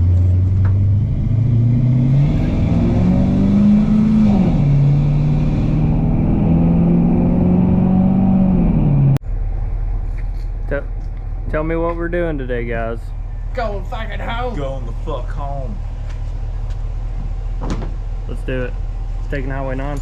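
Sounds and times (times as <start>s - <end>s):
truck engine accelerating: 0.0s - 20.0s.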